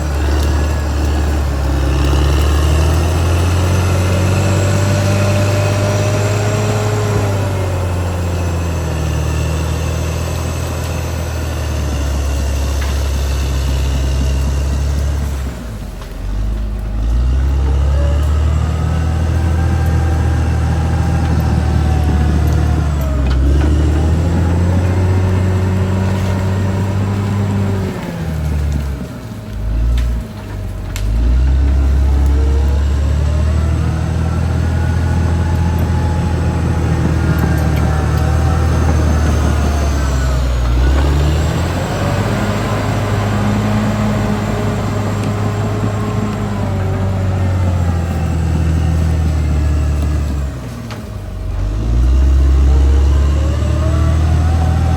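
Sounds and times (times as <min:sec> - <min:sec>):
bulldozer diesel engine revving: 0:00.0 - 0:54.9.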